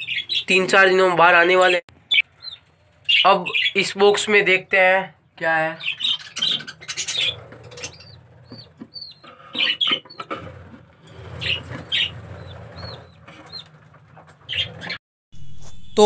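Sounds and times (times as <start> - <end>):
budgerigars chirping: 0.0 - 0.8, 2.1 - 4.6, 5.4 - 15.0
wings flapping and rustling: 6.0 - 15.0.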